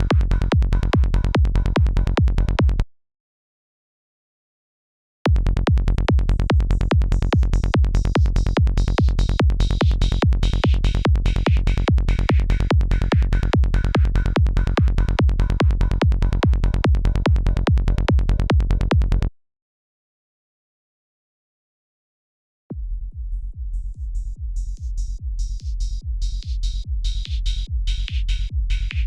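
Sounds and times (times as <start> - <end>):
electronic kick drum: 0.0 - 2.9, 5.3 - 19.3, 22.7 - 29.0
synthesizer bass with filter sweep: 0.0 - 2.9, 5.3 - 19.3, 22.8 - 29.0.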